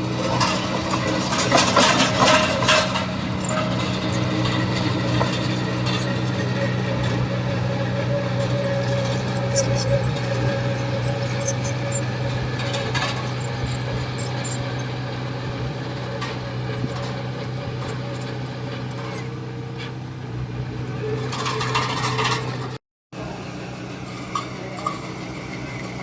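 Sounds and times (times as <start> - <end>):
rattling noise: 0.0 - 19.9
heavy diesel engine running: 0.0 - 26.0
clanks and knocks: 0.2 - 15.1.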